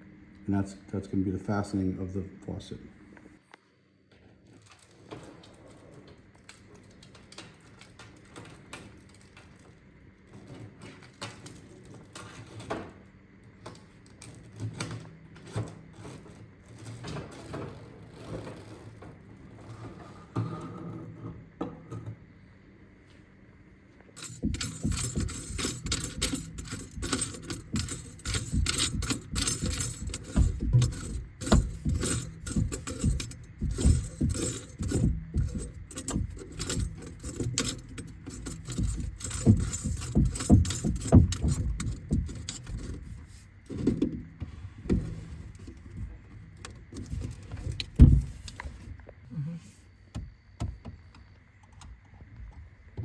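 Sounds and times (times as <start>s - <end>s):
metal tools clinking and rattling: 24.2s - 44.1s.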